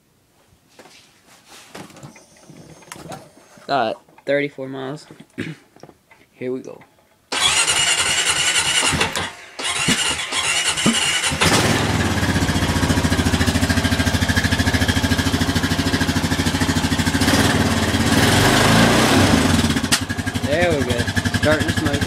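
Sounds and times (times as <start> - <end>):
electric starter cranking: 7.3 - 20.3
engine idling: 7.4 - 22.0.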